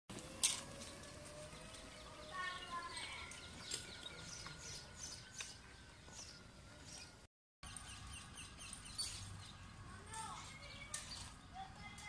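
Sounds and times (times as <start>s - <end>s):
birds chirping: 0.2s - 12.0s.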